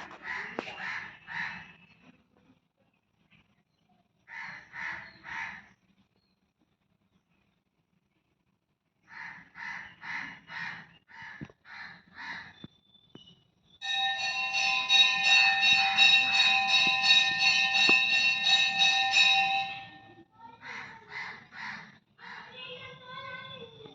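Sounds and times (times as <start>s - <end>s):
crows cawing: 0.0s - 1.8s, 4.3s - 5.7s, 9.1s - 12.6s, 20.6s - 22.8s
metal bell ringing: 13.8s - 20.2s.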